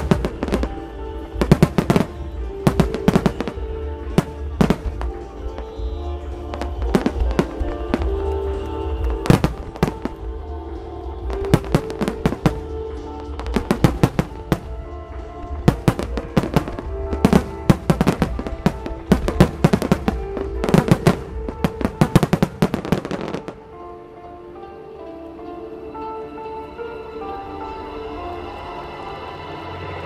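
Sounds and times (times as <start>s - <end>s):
fireworks bursting: 0.0s - 23.8s
music: 0.0s - 30.0s.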